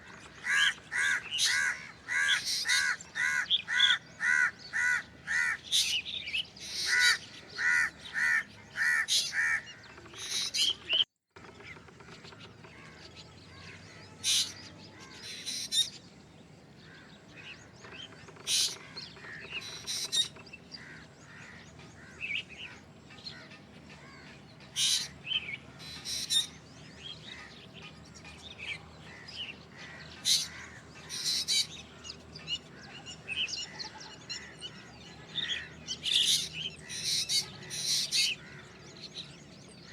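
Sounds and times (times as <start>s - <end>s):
bird harsh repeated calls: 0.0s - 16.1s, 16.9s - 39.9s.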